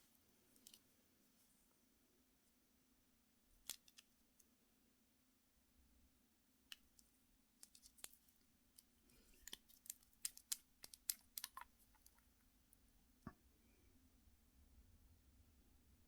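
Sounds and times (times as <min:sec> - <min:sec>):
small objects clicking and tapping: 0:06.7 - 0:12.4.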